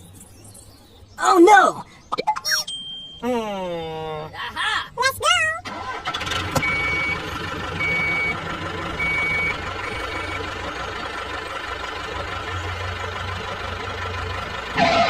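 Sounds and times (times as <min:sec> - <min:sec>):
reversing alarm beeps: 0:02.6 - 0:03.3, 0:06.6 - 0:07.2, 0:07.8 - 0:08.4, 0:09.0 - 0:10.5
engine running: 0:05.6 - 0:15.0.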